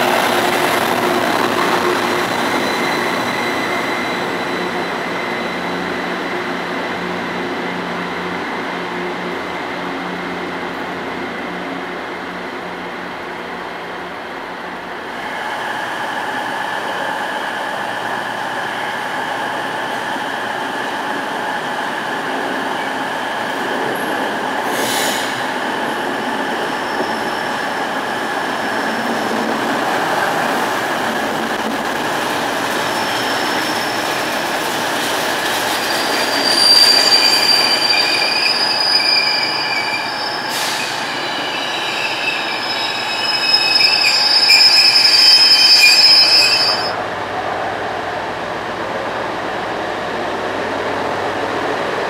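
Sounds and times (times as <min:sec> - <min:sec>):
wheels squealing on rails: 0:00.0 - 0:09.7, 0:15.1 - 0:47.0.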